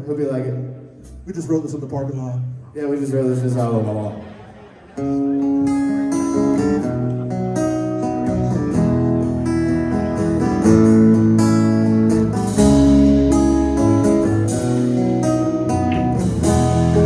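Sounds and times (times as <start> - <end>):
live band playing: 3.6 - 17.0
strummed acoustic guitar chords: 5.0 - 17.0.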